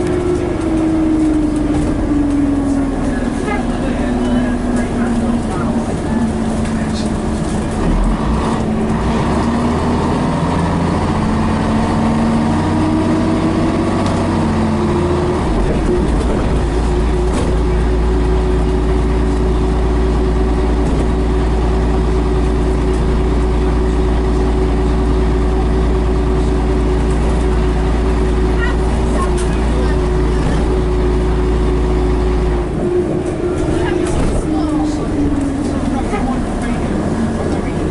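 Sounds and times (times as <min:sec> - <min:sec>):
bus diesel engine pulling: 0:00.0 - 0:37.9
deep rumble: 0:00.0 - 0:37.9.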